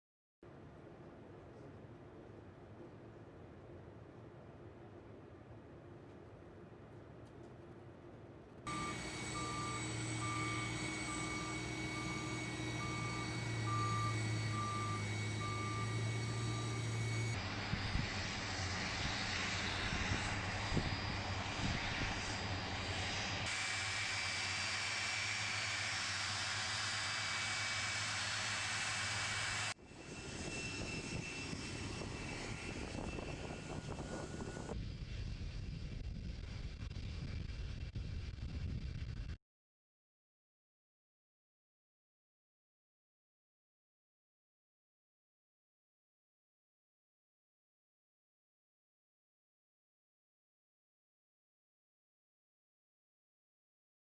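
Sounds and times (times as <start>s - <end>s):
jet engines running: 8.7s - 39.4s.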